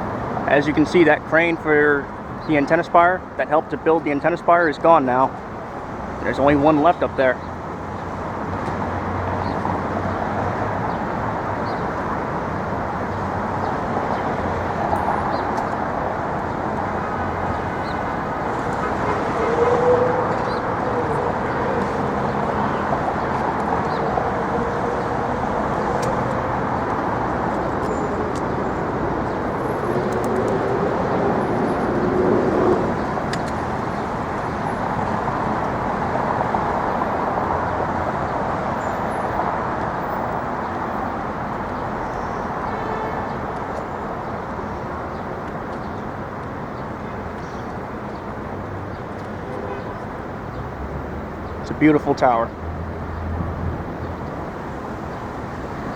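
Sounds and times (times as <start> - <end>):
street traffic noise: 0.0 - 55.9
passing vehicle engine: 16.1 - 38.1.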